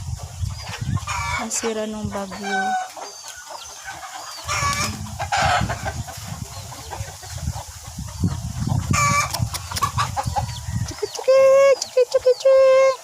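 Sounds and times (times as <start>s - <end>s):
chickens clucking: 0.0s - 13.0s
loud chicken call: 3.9s - 6.0s
low microphone rumble: 4.4s - 11.0s.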